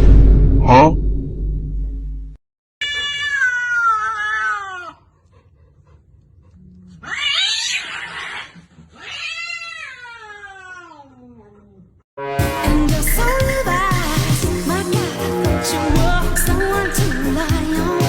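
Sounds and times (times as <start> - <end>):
cat meowing: 2.8 - 5.0, 7.0 - 11.4.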